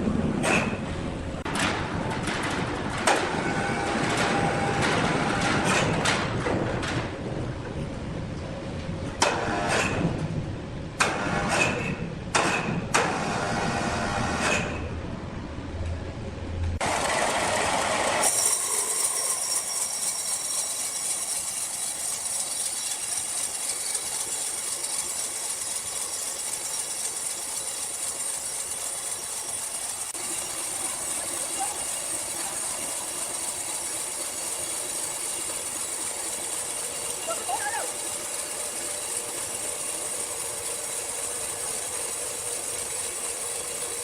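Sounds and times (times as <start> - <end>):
sawmill machinery hiss and whine: 3.0 - 5.9, 16.5 - 44.0.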